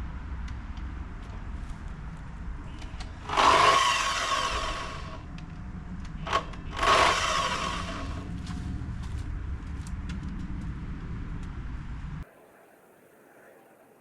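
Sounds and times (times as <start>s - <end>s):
power saw cutting wood: 3.2s - 5.2s, 6.3s - 8.3s.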